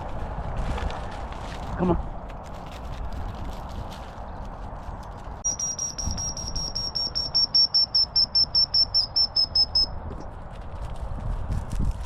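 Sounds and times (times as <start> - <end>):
rapid high thin chirps: 5.4 - 10.0.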